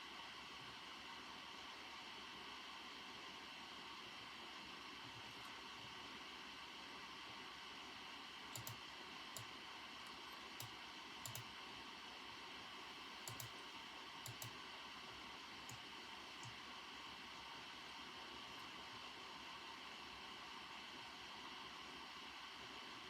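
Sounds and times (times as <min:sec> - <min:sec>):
computer keyboard keystrokes: 0:08.5 - 0:08.8, 0:10.6 - 0:11.5, 0:13.2 - 0:13.6, 0:14.2 - 0:14.6.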